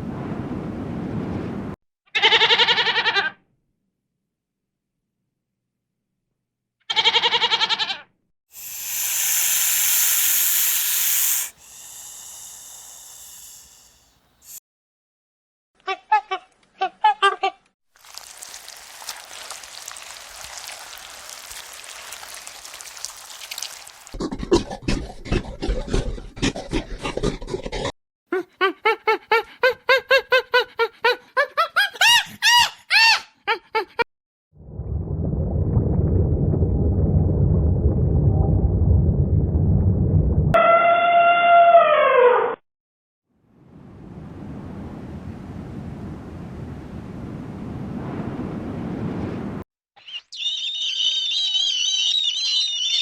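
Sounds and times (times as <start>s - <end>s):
goat-like bleat: 2.1s - 3.4s, 6.9s - 8.1s
steady hiss: 8.6s - 14.6s
animal squeaky calls: 50.0s - 53.0s.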